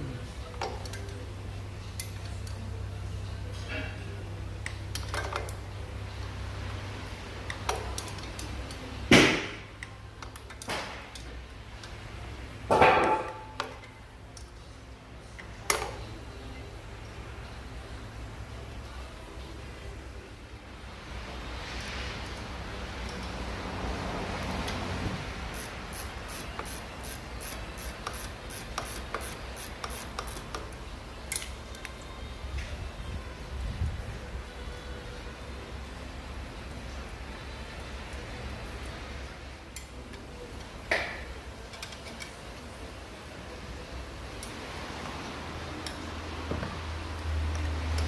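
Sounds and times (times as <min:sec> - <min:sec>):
low steady hum: 0:00.0 - 0:48.0
ratchet clicks: 0:25.5 - 0:31.5.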